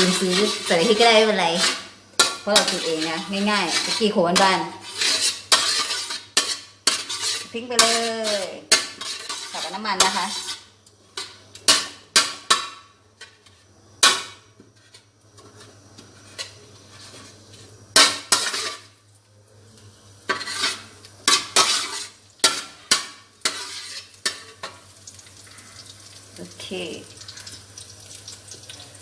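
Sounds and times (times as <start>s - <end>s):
metal spatula scraping a pan: 0.0s - 19.0s, 20.2s - 26.2s
faint sizzle: 0.0s - 29.0s.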